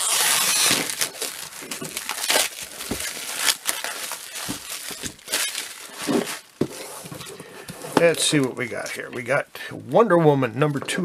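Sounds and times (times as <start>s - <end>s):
packaging crinkling and crackling: 0.0s - 9.0s.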